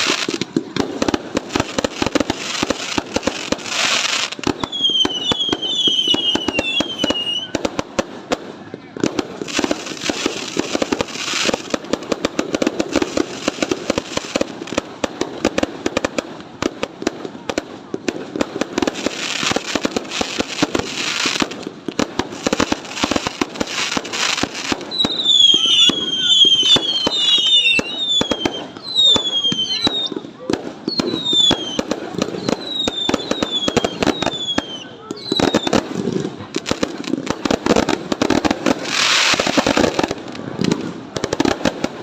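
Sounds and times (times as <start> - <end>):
fireworks bangs and crackles: 0.0 - 42.0
fireworks hiss: 0.0 - 42.0
falling firework whistles: 3.6 - 7.6, 23.9 - 35.8.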